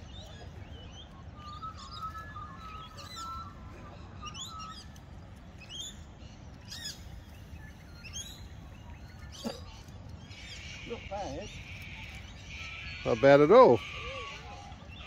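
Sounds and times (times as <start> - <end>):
birds chirping: 0.0 - 15.0
warbling whistle: 1.2 - 5.1.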